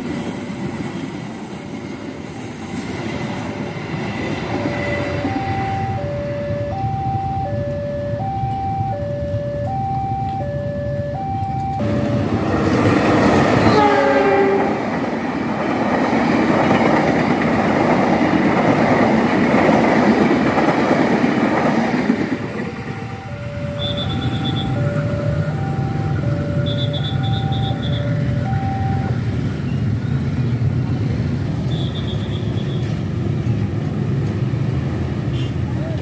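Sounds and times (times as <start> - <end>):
level crossing warning tones: 4.7 - 14.5, 22.4 - 29.4
train wheels rumbling and clattering: 11.6 - 31.9, 32.6 - 36.0
train horn: 13.6 - 14.8, 23.0 - 24.8.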